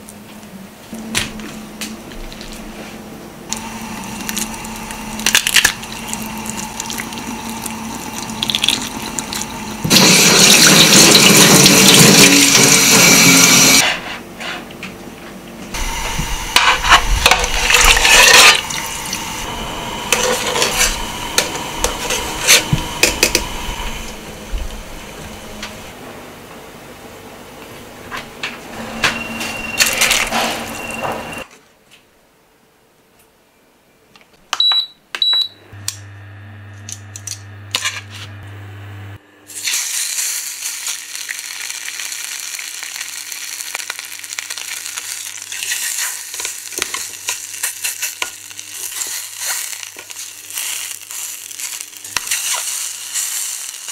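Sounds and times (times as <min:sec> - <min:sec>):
meat sizzling in a pan: 0:39.5 - 0:53.9.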